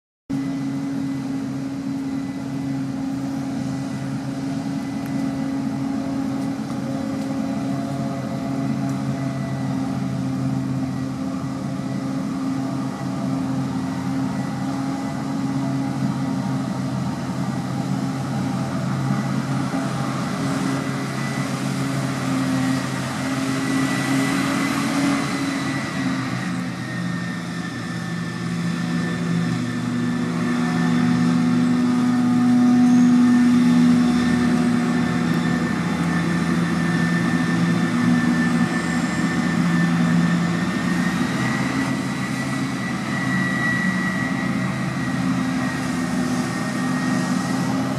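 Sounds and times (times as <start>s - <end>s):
diesel farm machinery running: 0.3s - 47.9s
thin high whine: 0.3s - 47.9s.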